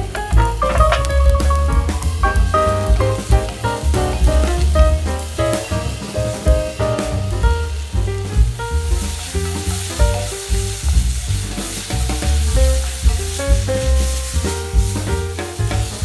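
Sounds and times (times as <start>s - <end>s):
background music with walking bass: 0.0s - 16.0s
food sizzling in a pan: 0.1s - 16.0s.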